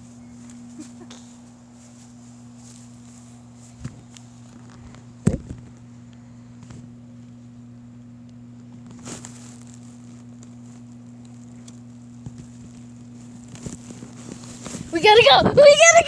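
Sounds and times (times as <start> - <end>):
short rustle: 0.0 - 5.1, 8.8 - 16.0
steady low hum: 0.0 - 16.0.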